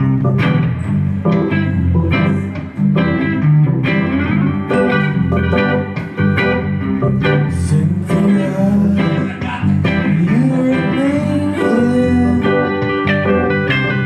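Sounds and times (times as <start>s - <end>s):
bass: 0.0s - 14.0s
guitar with bent notes: 0.0s - 14.0s.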